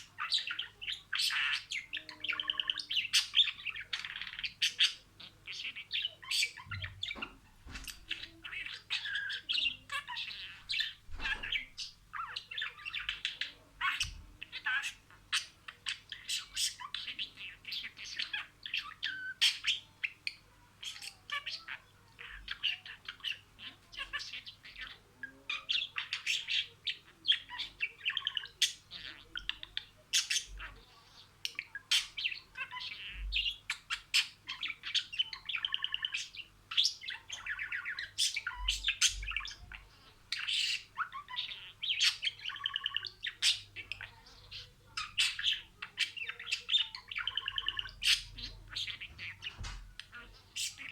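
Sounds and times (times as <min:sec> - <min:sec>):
budgerigar warbling and chattering: 0:00.0 - 0:50.9.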